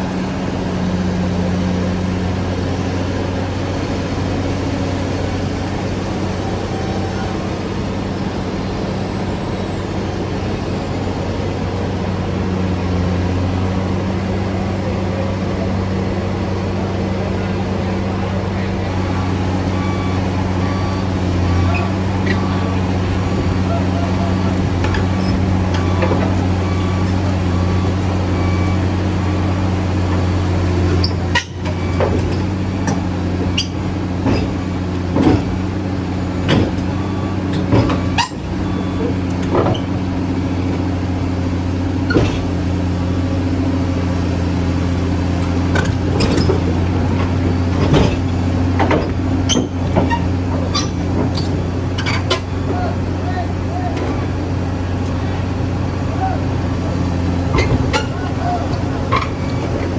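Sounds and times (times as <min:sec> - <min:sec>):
heavy diesel engine running: 0:00.0 - 0:59.9
clanks and knocks: 0:30.9 - 0:40.1, 0:45.7 - 0:52.8, 0:57.4 - 0:59.9.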